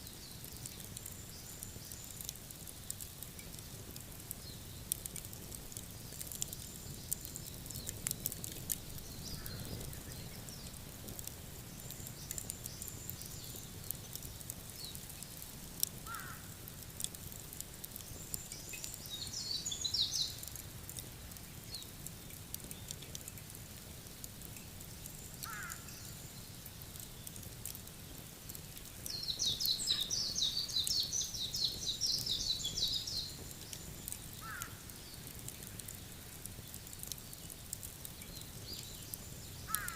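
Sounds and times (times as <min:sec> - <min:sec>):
campfire crackles: 0:00.0 - 0:39.9
birds chattering: 0:29.1 - 0:35.2.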